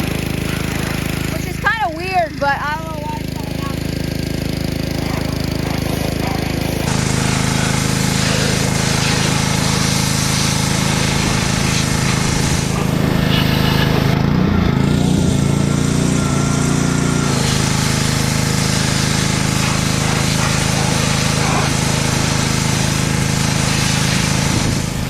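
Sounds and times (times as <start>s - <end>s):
small petrol engine running: 0.0s - 25.0s
hiss: 6.9s - 14.0s, 17.3s - 25.0s.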